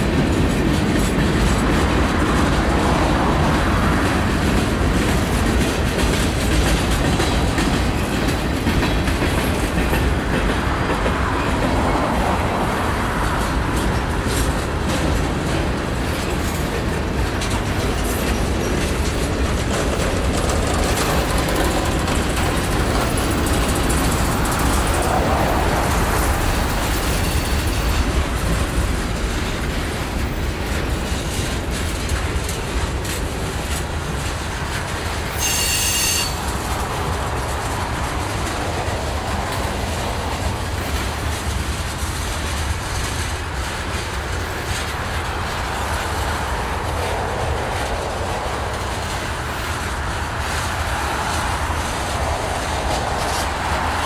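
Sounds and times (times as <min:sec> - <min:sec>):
freight cars rumbling and rattling: 0:00.0 - 0:54.0
train wheel squealing: 0:15.9 - 0:41.6.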